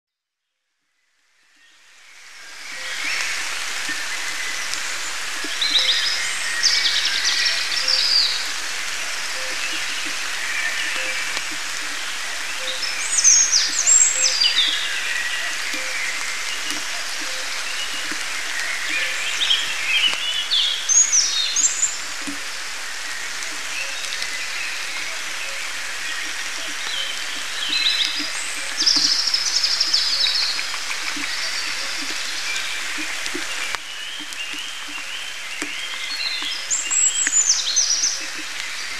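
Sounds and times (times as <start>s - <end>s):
steady rain falling: 1.2s - 38.9s
songbird warbling: 2.7s - 38.9s
drops tapping close by: 26.2s - 38.7s.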